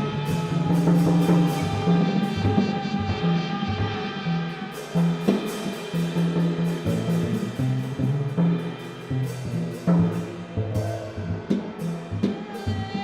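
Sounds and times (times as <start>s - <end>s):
drum kit with cymbals: 0.0s - 13.0s
double bass line: 6.8s - 12.8s.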